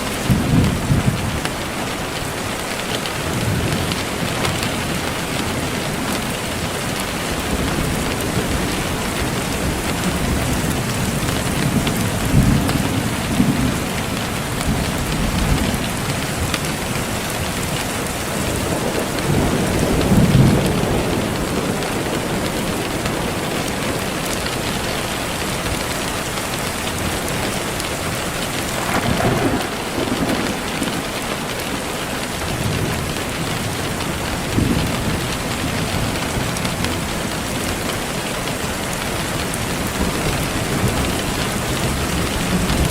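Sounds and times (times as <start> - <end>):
heavy rain hissing: 0.0 - 42.9
thunder rolling: 18.4 - 24.9, 28.6 - 38.0.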